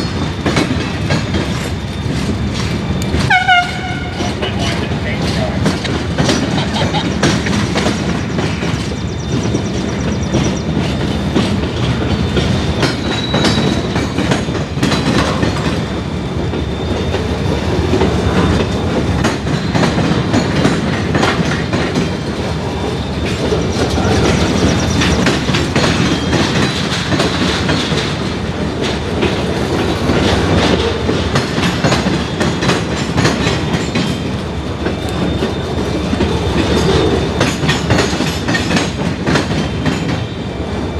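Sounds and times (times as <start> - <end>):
high wheel squeal: 0.0 - 39.0
steel wheels clunking over rail joints: 0.0 - 40.9.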